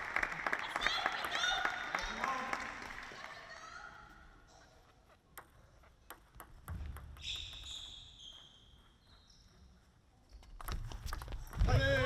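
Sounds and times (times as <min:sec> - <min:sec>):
short high-pitched squeaks: 0:07.2 - 0:09.7.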